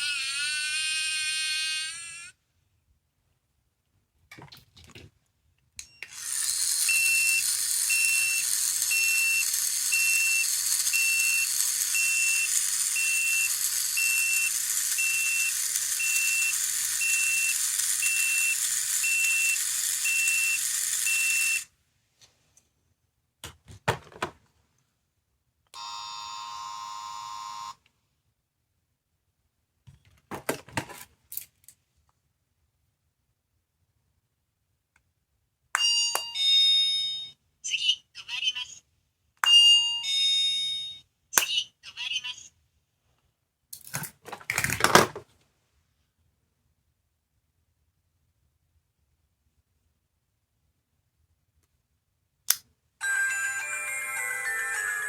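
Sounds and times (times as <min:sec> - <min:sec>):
toy speaker hiss with beeps: 0:06.0 - 0:21.7.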